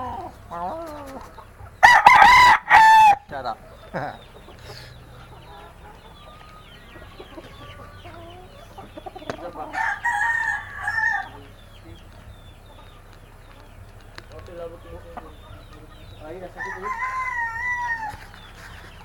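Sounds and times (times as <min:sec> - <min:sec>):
chickens clucking: 0:00.0 - 0:19.0
rooster crowing: 0:01.8 - 0:03.2, 0:09.6 - 0:11.5, 0:16.5 - 0:18.7.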